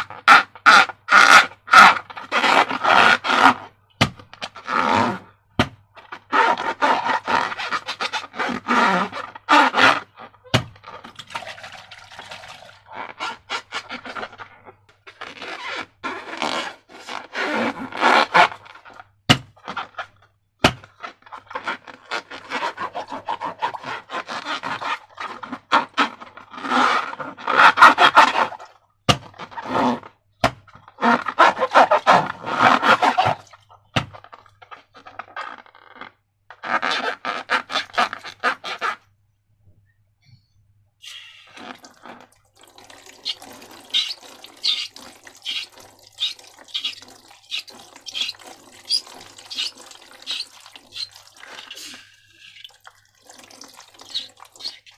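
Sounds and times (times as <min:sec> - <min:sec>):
wet squishing slime: 0:41.1 - 0:54.9.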